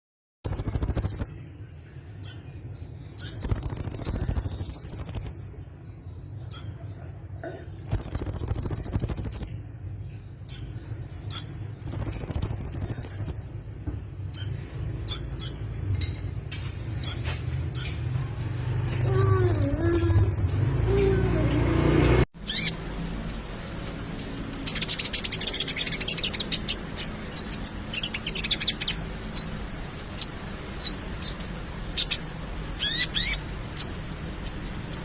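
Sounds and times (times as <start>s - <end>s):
bird chirps: 0.4s - 21.4s, 22.4s - 35.0s
songbird singing: 0.4s - 35.0s
faint high tone: 18.9s - 21.6s.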